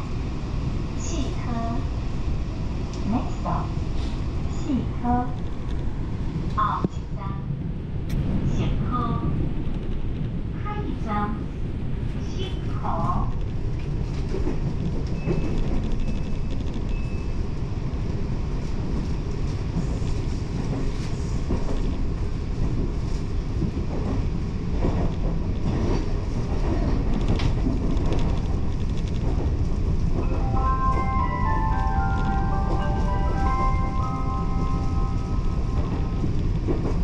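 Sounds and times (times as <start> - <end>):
train rumbling along track: 0.0 - 37.0
chime melody: 30.2 - 36.2.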